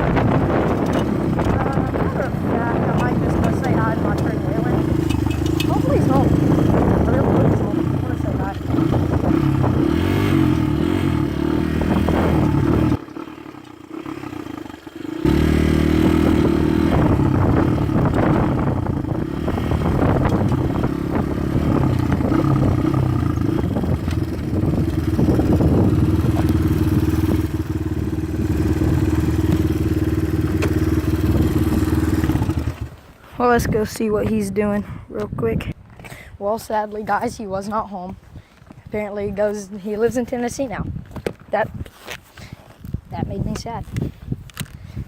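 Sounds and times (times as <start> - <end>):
dirt bike engine running: 0.0 - 34.4.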